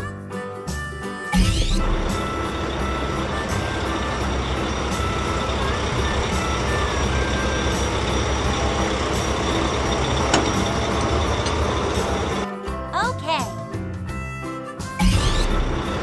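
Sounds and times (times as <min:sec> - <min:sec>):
truck engine rumbling: 0:01.4 - 0:12.5, 0:14.8 - 0:16.0.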